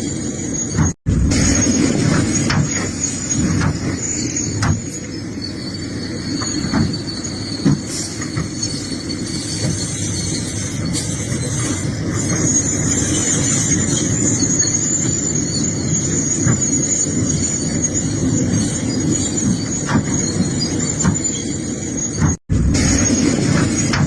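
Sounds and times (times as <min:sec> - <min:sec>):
excavator rumbling: 0:00.0 - 0:24.0
high-pitched squeal: 0:00.0 - 0:24.0.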